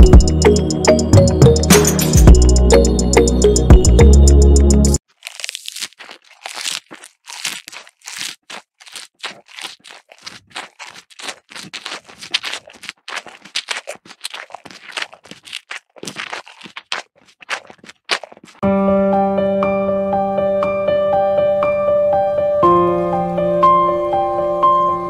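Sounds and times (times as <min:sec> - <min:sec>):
brittle material crunching: 0:05.0 - 0:18.6.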